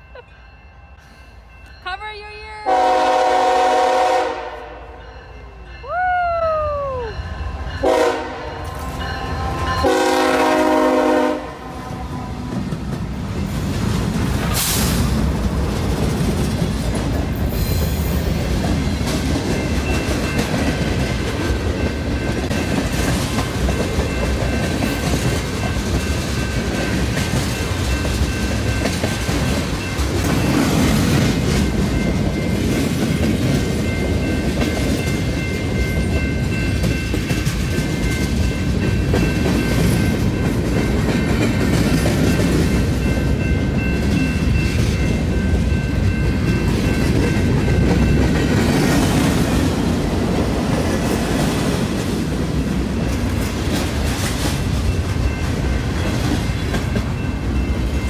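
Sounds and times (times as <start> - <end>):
steel wheels rumbling on rails: 2.7 - 58.0
steady high tones: 7.0 - 10.4.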